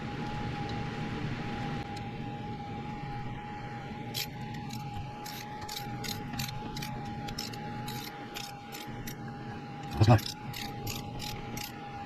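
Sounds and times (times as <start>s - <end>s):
ratchet wrench clicking: 4.2s - 9.2s, 9.9s - 11.7s.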